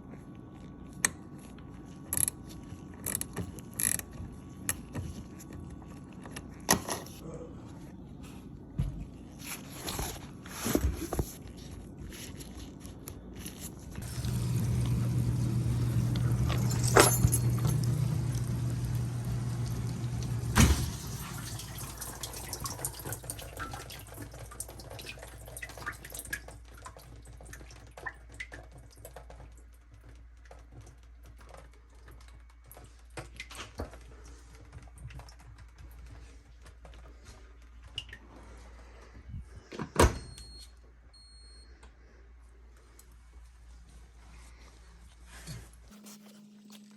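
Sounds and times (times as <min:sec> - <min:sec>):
low hum: 0:13.9 - 0:21.5
water running: 0:14.0 - 0:29.4
faint water trickle: 0:14.0 - 0:30.0.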